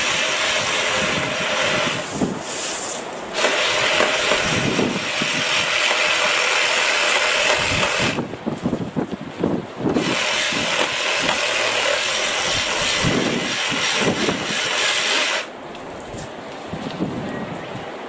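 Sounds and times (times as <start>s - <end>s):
power saw motor whine: 0.0s - 2.2s, 3.3s - 8.3s, 9.9s - 15.5s.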